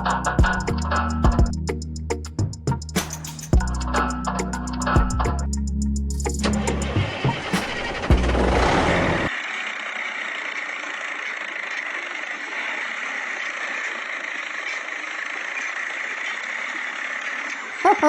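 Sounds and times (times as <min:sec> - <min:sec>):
loud music: 0:00.0 - 0:09.1
small motor running: 0:06.4 - 0:18.0.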